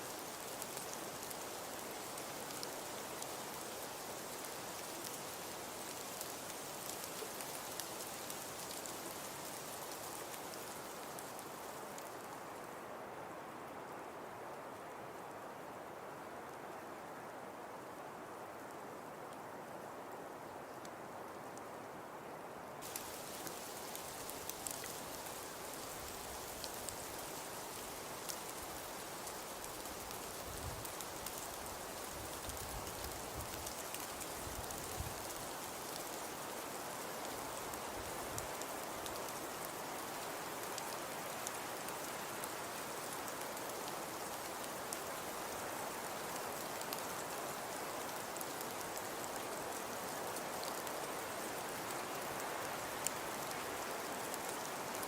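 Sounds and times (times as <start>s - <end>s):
fire crackling and popping: 22.8s - 36.2s
fire hiss: 22.8s - 55.0s.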